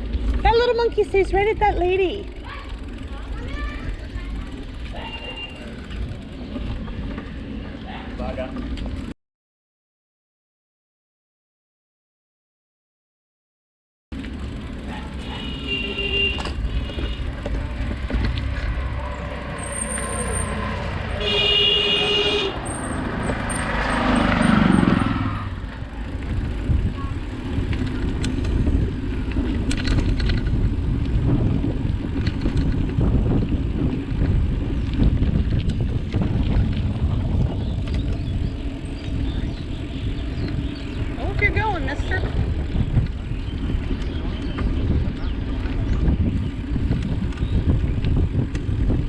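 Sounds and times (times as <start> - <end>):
wind and road rumble: 0.0 - 9.2, 14.1 - 49.0
vehicle horn tooting: 5.0 - 5.7, 15.2 - 17.4, 21.1 - 22.8
vehicle passing: 14.2 - 32.1.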